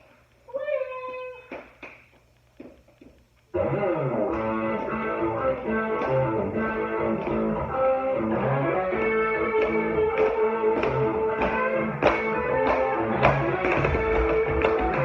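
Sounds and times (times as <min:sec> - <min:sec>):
guitar-led song with beat: 0:03.6 - 0:15.0.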